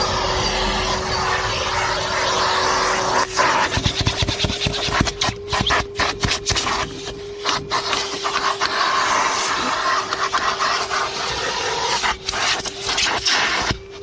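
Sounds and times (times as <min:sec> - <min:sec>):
vacuum cleaner motor hum: 0:00.0 - 0:14.0
nozzle rubbing and knocking: 0:03.4 - 0:06.8.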